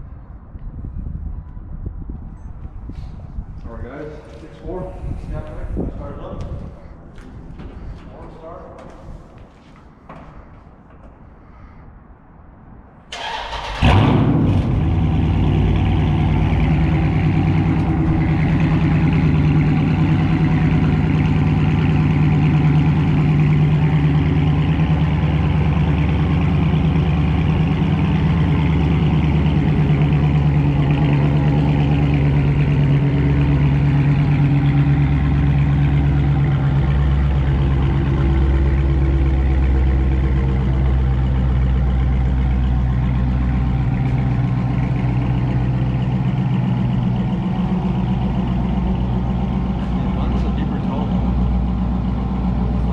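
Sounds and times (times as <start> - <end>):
car engine idling: 13.1 - 52.9.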